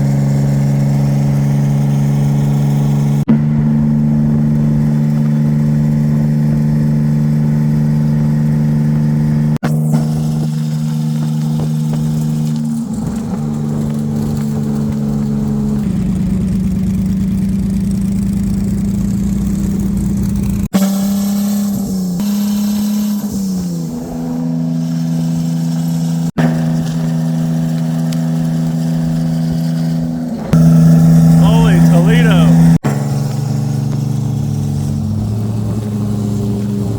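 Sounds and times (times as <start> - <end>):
vehicle engine droning: 27.8 - 36.9.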